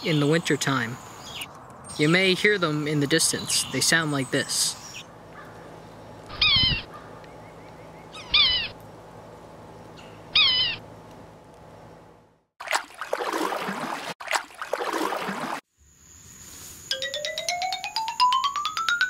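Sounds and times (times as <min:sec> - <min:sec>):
bird mewing calls: 0:04.8 - 0:08.8, 0:09.9 - 0:10.9
canoe paddle swishing through water: 0:12.6 - 0:15.6.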